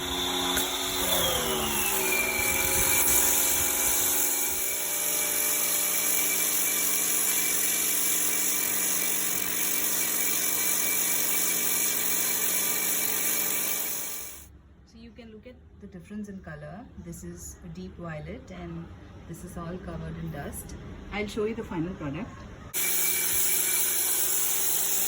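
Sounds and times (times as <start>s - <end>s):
pressure washer motor whine: 0.0s - 6.8s.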